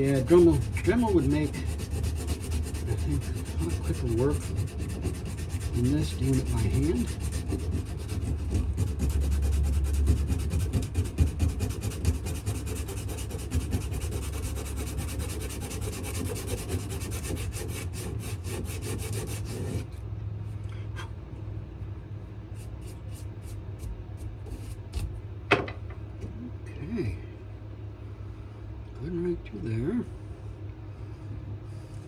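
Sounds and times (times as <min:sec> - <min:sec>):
sandpaper rasping on wood: 0:00.0 - 0:19.9
steady low hum: 0:00.0 - 0:32.0.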